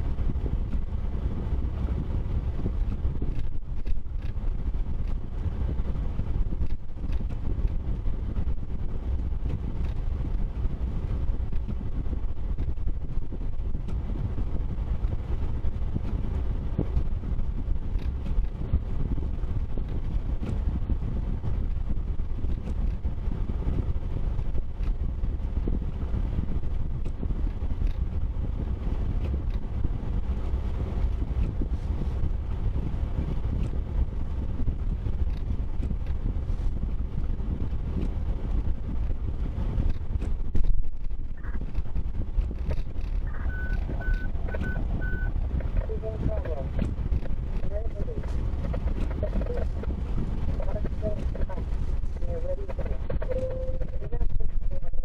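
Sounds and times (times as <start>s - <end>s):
vehicle low rumble: 0.0s - 55.0s.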